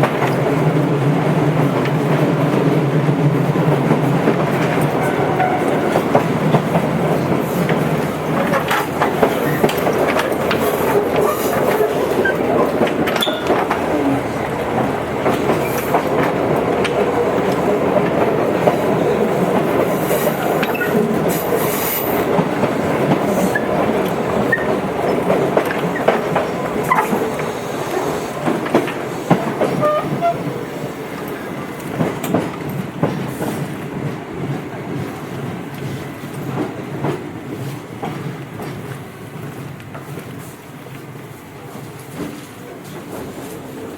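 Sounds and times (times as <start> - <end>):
wheels clicking over rail joints: 0.0 - 43.8
electric train rumbling: 0.0 - 43.9.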